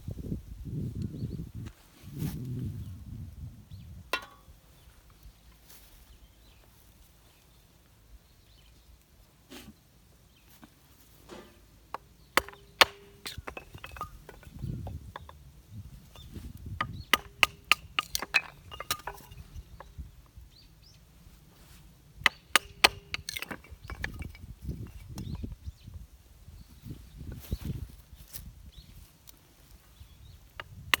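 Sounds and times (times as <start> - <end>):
sharp metallic knocks: 4.1 - 4.5, 11.9 - 15.4, 16.1 - 19.6, 22.2 - 24.4.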